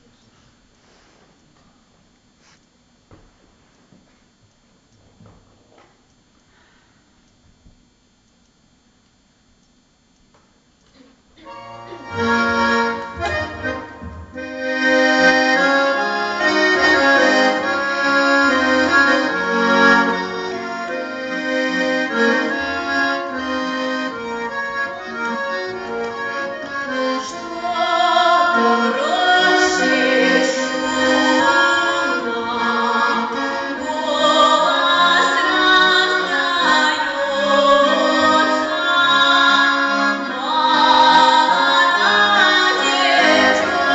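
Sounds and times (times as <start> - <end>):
accordion playing a tune: 11.4 - 43.9.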